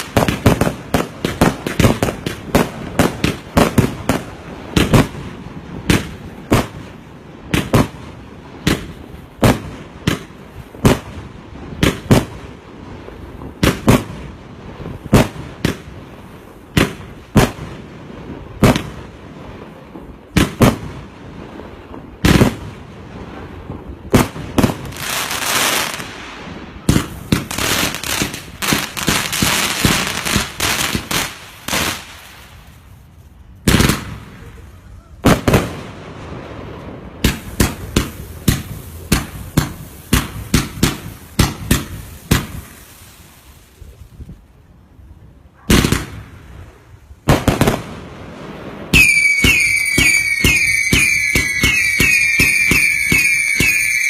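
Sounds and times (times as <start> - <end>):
rapid firework pops: 0.0 - 5.2, 37.2 - 42.8
firework bangs: 0.0 - 44.0, 45.5 - 54.0
firework hiss: 20.5 - 35.0, 35.8 - 44.3.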